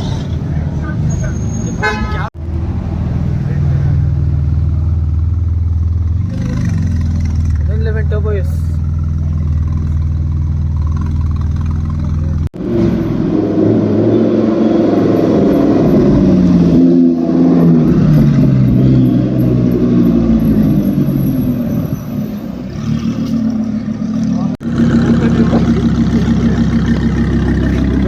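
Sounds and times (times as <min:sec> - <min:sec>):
engine revving and pulling away: 0:02.4 - 0:28.0
sports car engine low note: 0:22.8 - 0:28.0.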